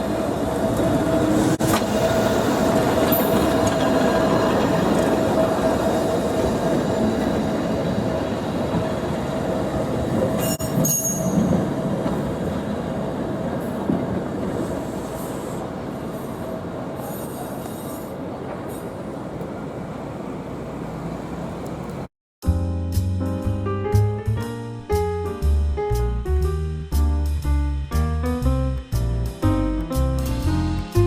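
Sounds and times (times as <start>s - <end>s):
streetcar rumbling with humming tone: 0.0s - 22.1s
high-pitched wheel squeal: 10.4s - 11.6s.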